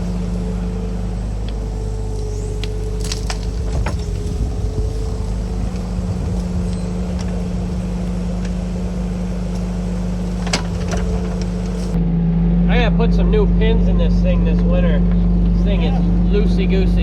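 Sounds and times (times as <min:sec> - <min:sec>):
excavator arm clanking: 0:00.0 - 0:12.0
diesel engine running: 0:00.0 - 0:17.0.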